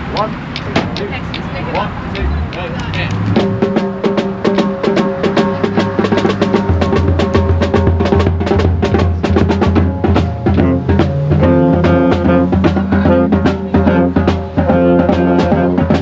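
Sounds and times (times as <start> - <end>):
snare and bass drums: 0.0 - 16.0
brass chords: 3.2 - 16.0
held low note: 9.2 - 16.0.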